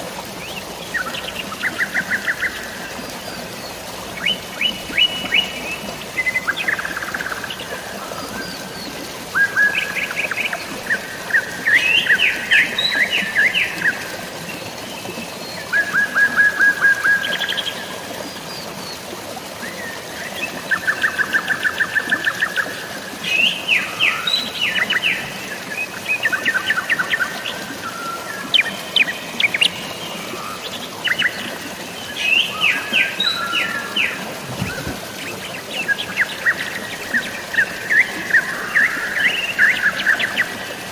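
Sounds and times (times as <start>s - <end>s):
water hissing: 34.3s - 35.6s.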